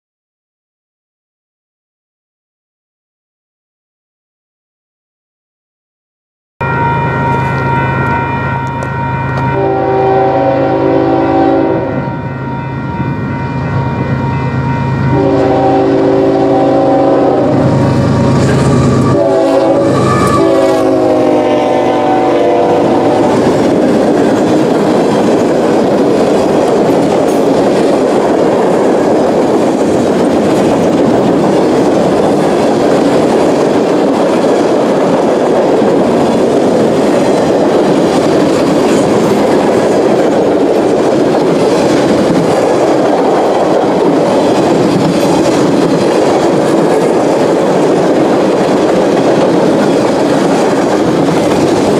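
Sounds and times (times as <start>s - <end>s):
locomotive horn blasts: 6.6s - 23.5s
freight cars rumbling and rattling: 22.8s - 51.9s.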